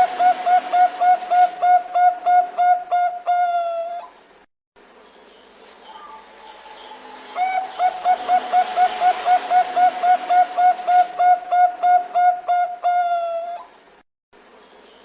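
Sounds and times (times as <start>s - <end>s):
dove cooing: 0.0s - 4.2s, 5.9s - 13.8s.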